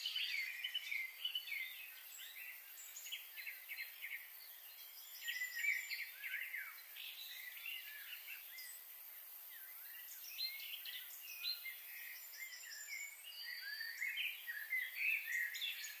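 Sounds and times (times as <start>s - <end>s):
faint steady hiss: 0.0s - 16.0s
small birds chirping: 0.0s - 16.0s.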